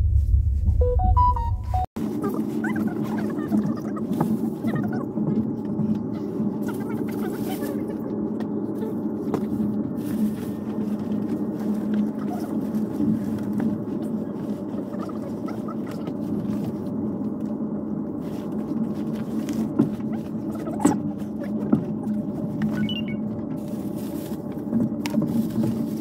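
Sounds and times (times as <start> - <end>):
train running rumble: 0.0 - 26.0.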